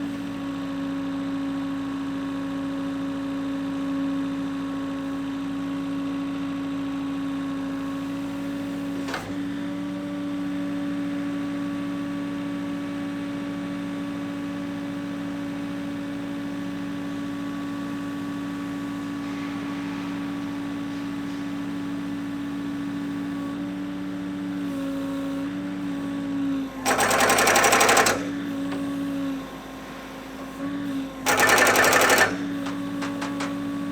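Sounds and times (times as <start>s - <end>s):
piling rig mechanical hum: 15.0s - 33.9s
pile-driving hammer blows: 31.3s - 33.9s.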